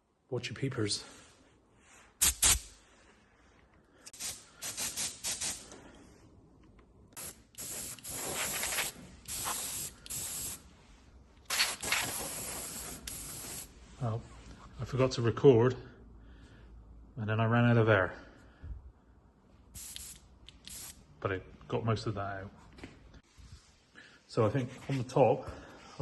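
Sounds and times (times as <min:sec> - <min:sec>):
air blow gun hissing blasts: 0:04.1 - 0:05.7, 0:07.2 - 0:10.7, 0:11.5 - 0:13.7.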